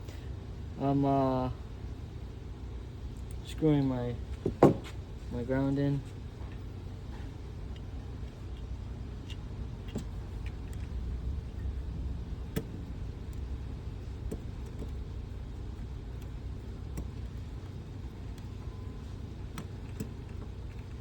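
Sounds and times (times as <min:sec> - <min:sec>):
steady low rumble: 0:06.7 - 0:18.3.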